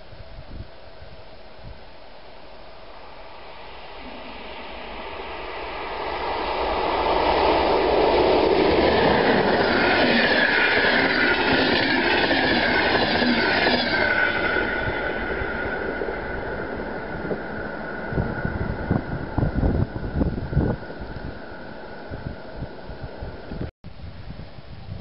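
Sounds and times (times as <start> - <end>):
passenger train passing: 2.0 - 23.7
high whine falling in pitch: 2.8 - 23.7.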